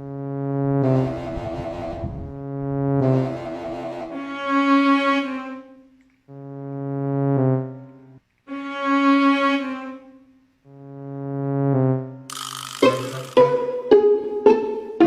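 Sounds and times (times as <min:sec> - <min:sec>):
held brass-like chords: 0:00.0 - 0:05.4, 0:06.3 - 0:09.7.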